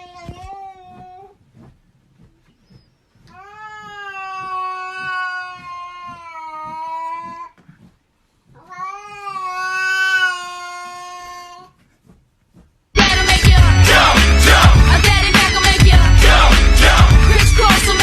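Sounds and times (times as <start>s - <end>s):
cat yowling: 8.6s - 11.7s.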